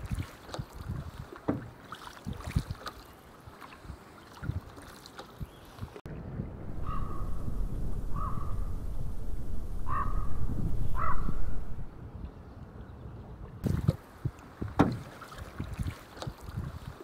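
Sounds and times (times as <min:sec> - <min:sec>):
wind rumbling on microphone: 0:00.0 - 0:02.9, 0:03.8 - 0:04.8, 0:05.4 - 0:17.0
paddle strokes splashing water: 0:00.0 - 0:06.1, 0:13.4 - 0:17.0
paddle knocks: 0:00.1 - 0:03.0, 0:14.6 - 0:16.9.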